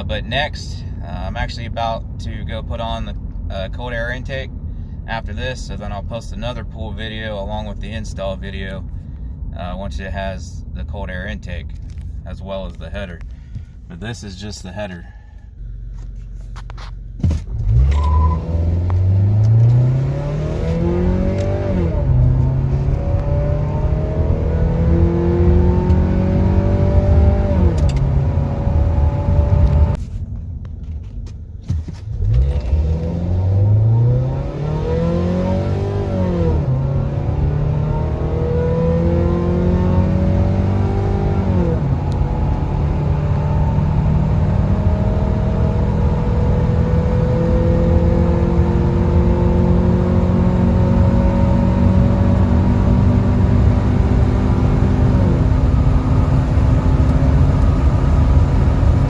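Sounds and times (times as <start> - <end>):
car engine at full throttle: 17.2 - 30.0, 31.6 - 59.0.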